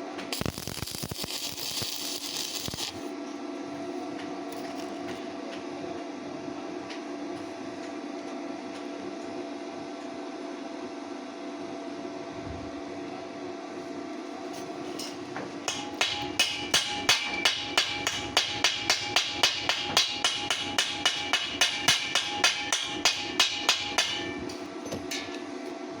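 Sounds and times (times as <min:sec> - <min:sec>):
steady background hum: 0:00.0 - 0:26.0
hammer striking steel tube: 0:15.0 - 0:25.5.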